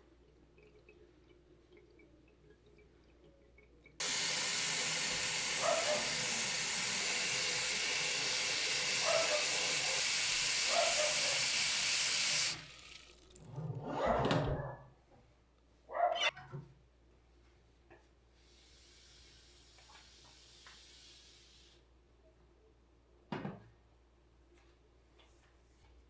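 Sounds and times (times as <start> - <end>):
water running from a tap: 0.6 - 13.4, 18.5 - 21.7.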